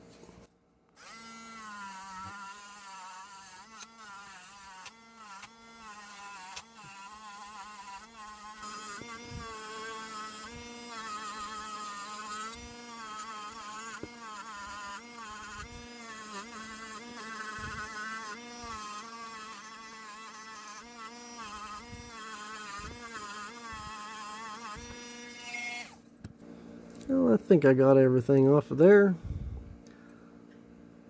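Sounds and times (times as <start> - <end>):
rotary tool wire brush buzzing: 1.0 - 26.1.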